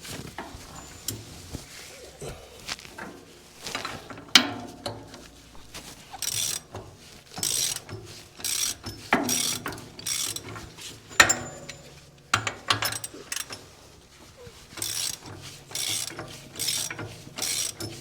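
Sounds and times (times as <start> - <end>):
ratchet wrench clicking: 6.2 - 6.7, 7.4 - 10.6, 14.8 - 18.0
metal clanks with ringing: 11.1 - 13.6.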